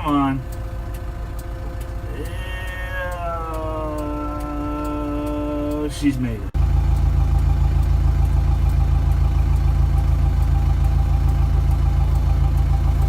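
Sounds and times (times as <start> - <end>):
engine idling: 0.0 - 13.0
faint regular ticks: 0.5 - 6.3.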